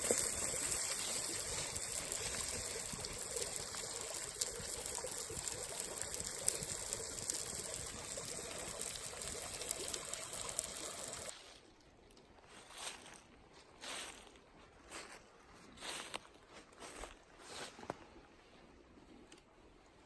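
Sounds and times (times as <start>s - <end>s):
water trickling: 0.0s - 11.3s
small crackles: 0.0s - 13.2s.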